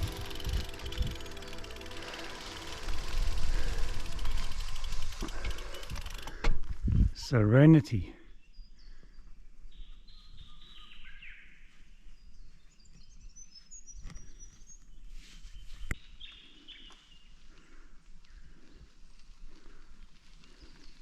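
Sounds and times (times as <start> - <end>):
wind rumble on microphone: 0.0 - 1.4, 6.6 - 7.2
birds chirping: 7.6 - 17.6.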